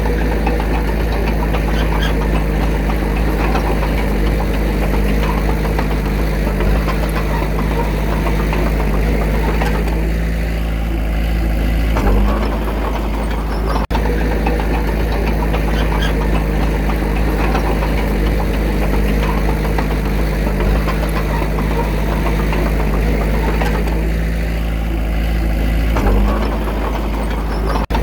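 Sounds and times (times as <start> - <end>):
diesel engine running roughly: 0.0 - 28.0.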